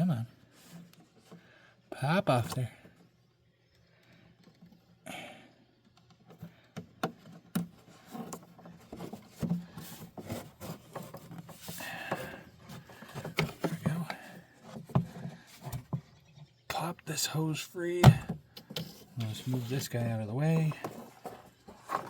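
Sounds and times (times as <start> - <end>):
plastic parts clicking and rubbing: 5.8 - 16.0, 18.5 - 22.0.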